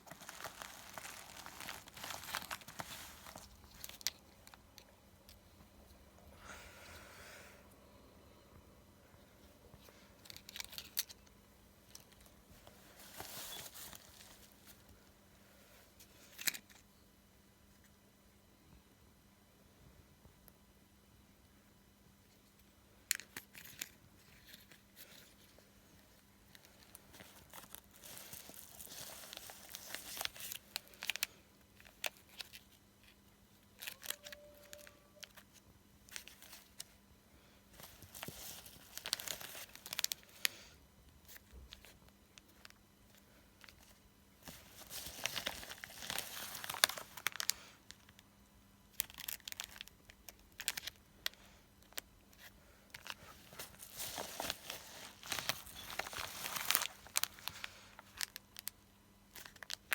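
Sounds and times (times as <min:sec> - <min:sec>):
packaging crinkling and tearing: 0:00.0 - 0:04.8, 0:10.2 - 0:11.3, 0:11.9 - 0:14.8, 0:26.5 - 0:37.0, 0:37.8 - 0:40.6, 0:43.6 - 0:48.2, 0:48.9 - 0:59.9.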